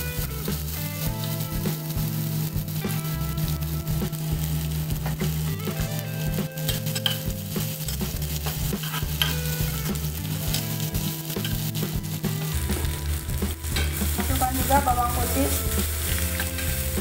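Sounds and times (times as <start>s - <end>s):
food sizzling in hot oil: 0.0s - 17.0s
metal spatula scraping pan: 6.6s - 9.6s.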